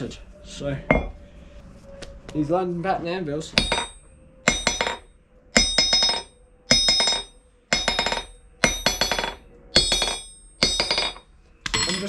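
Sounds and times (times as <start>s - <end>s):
hammer bouncing on anvil: 0.9s - 1.2s, 3.6s - 12.0s.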